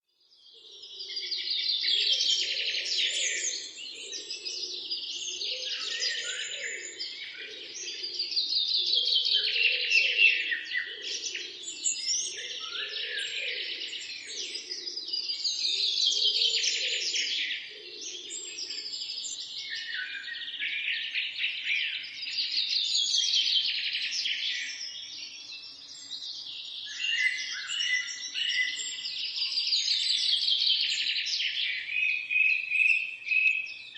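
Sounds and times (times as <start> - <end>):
birds chirping and singing: 0.4 - 33.9.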